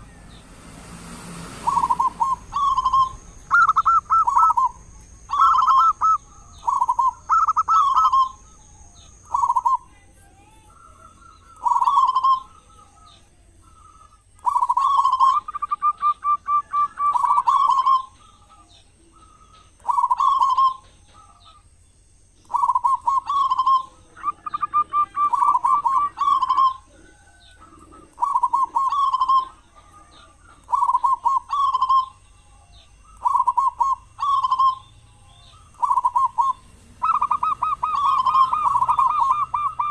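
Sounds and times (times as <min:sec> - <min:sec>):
dove fast stuttering notes: 0:00.0 - 0:08.4
dove cooing: 0:01.6 - 0:21.7, 0:22.4 - 0:39.9.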